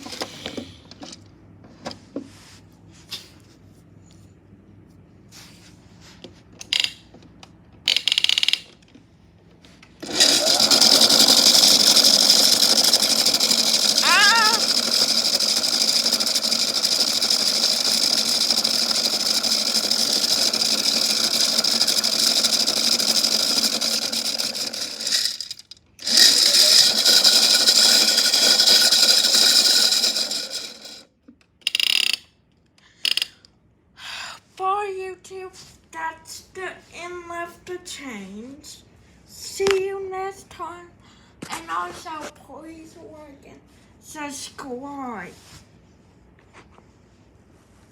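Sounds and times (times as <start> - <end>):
small electric motor whining: 10.0 - 31.1.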